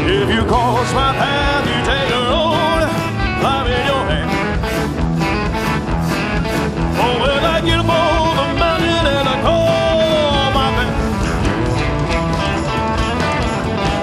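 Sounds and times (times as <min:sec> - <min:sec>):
electric guitar lines: 0:00.0 - 0:14.0
live rock band playing: 0:00.0 - 0:14.0
steady drum beat: 0:00.0 - 0:14.0.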